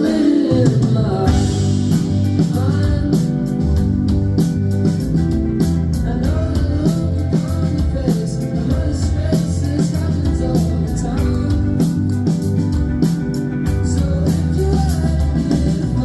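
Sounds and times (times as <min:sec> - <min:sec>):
person singing: 0:00.0 - 0:03.9, 0:05.9 - 0:12.4, 0:13.6 - 0:16.0
bass guitar: 0:00.0 - 0:16.0
drums with steady beat: 0:00.0 - 0:16.0
electric guitar: 0:00.0 - 0:16.0.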